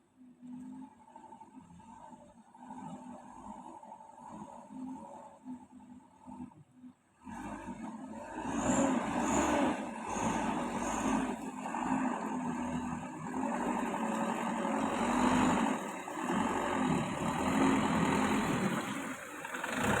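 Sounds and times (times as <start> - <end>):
vehicle engine revving unevenly: 0.4 - 20.0.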